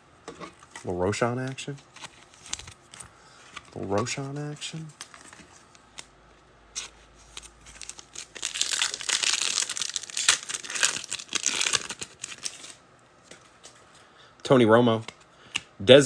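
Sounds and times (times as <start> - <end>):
foil wrapper crackling and ripping: 4.3 - 6.0, 6.8 - 12.8.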